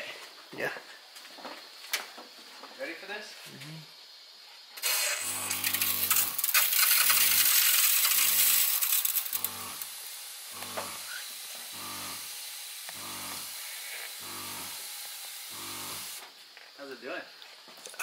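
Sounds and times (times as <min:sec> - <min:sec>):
water spraying from misting nozzles: 0:04.8 - 0:16.2
electric sprayer pump humming: 0:04.8 - 0:16.3.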